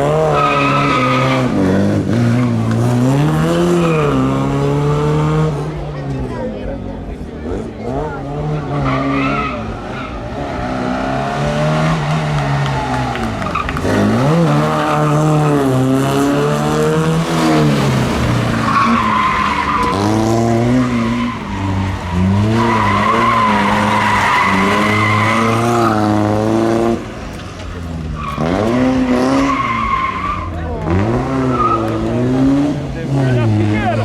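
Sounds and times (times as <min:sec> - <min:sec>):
tyres squealing: 0:00.0 - 0:02.9, 0:11.8 - 0:32.6
rally car engine revving: 0:00.0 - 0:34.0.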